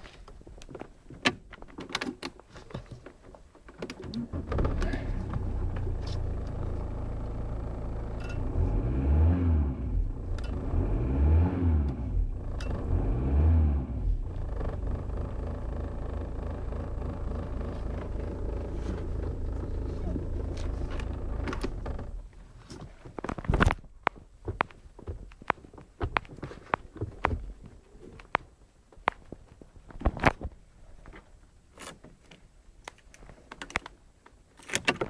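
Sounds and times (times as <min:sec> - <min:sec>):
car engine starting and idling: 0:04.0 - 0:22.8
car engine revving: 0:04.3 - 0:22.4.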